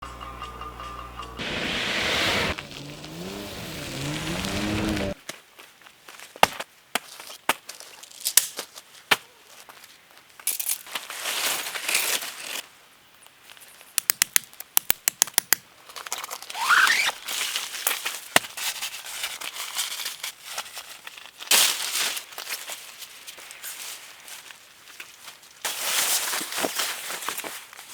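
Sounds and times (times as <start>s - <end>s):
short rising squeal: 1.4s - 5.2s.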